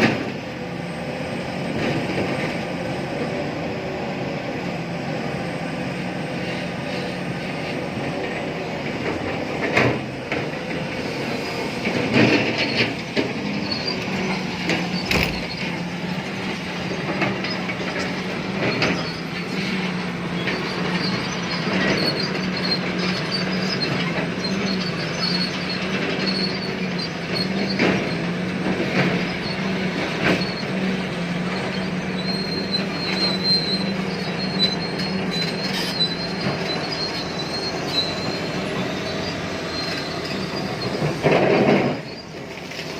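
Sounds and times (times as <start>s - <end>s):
excavator engine humming: 0.0s - 42.9s
high-pitched squealing: 10.9s - 27.8s, 31.6s - 42.4s
metallic clanks and knocks: 14.7s - 15.8s.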